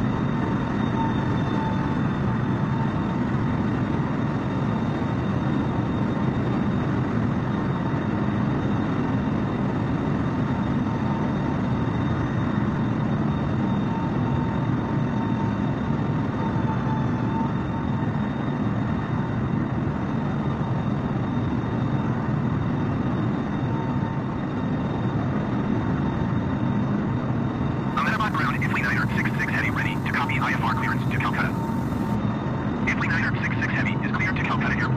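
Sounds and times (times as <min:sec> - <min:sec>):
jet engines droning: 0:13.0 - 0:34.9
faint high whine: 0:28.0 - 0:32.2, 0:32.8 - 0:34.9.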